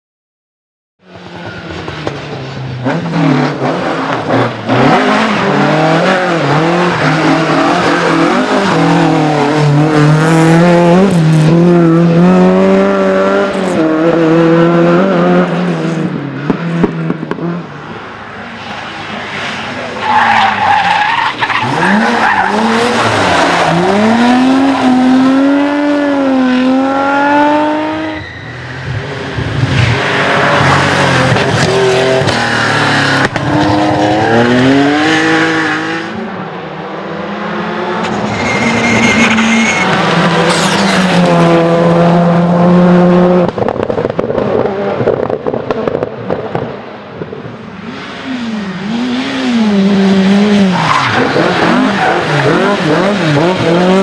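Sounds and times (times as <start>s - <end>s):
rally car engines revving: 1.1s - 54.0s
tyre squeal: 28.0s - 29.0s, 38.0s - 41.1s.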